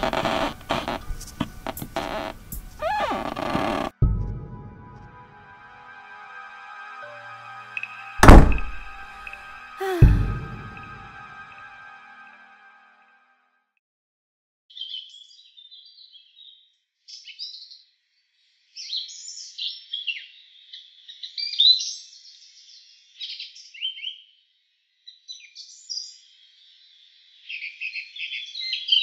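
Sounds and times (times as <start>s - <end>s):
bird song chirps and warbles: 14.7s - 29.0s.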